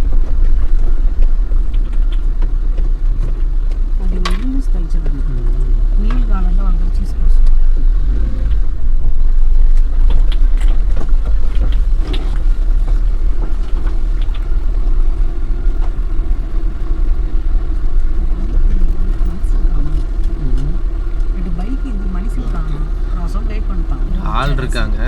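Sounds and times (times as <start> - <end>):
light ticks and rattles: 0.0 - 25.0
road and engine rumble: 0.0 - 25.0.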